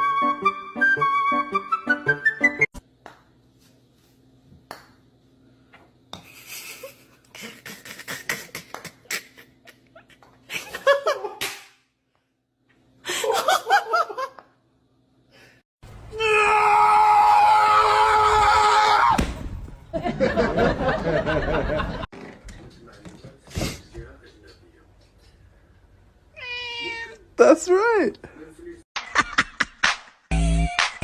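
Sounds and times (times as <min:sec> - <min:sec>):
people laughing: 0:13.1 - 0:14.4, 0:19.9 - 0:22.1.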